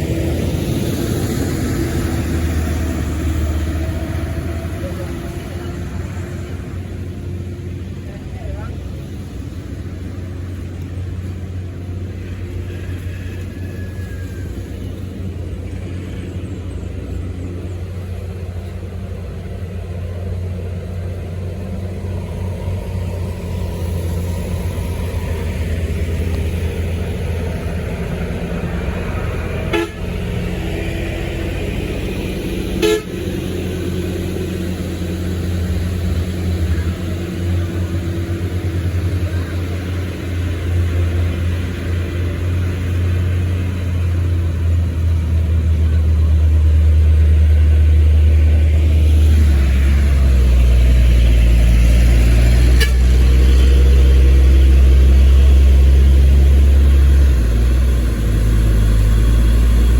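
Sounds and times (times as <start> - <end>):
vehicle engine droning: 0.0 - 59.9
car horns tooting: 29.6 - 30.3, 32.8 - 33.2, 52.7 - 53.7.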